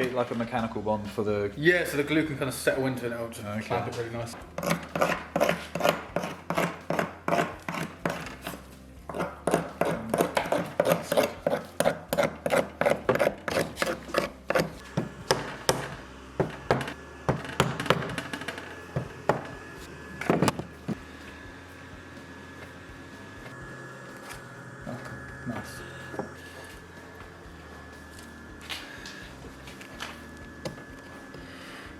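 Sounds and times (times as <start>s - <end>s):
hand tool scraping wood: 4.4s - 21.0s.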